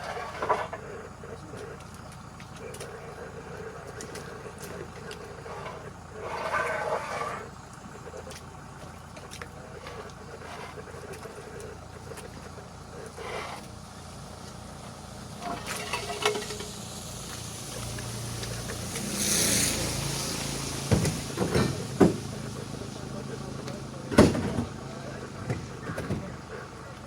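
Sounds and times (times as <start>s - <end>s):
low engine hum: 0.0s - 27.0s
loud hissing rush: 13.9s - 25.8s.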